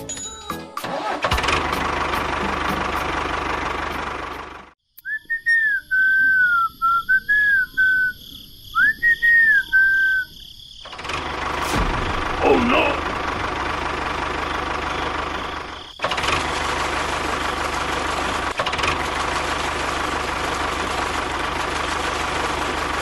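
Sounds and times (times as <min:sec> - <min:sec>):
person whistling a tune: 0:05.0 - 0:08.2, 0:08.8 - 0:10.3
noisy rumble: 0:11.0 - 0:15.3.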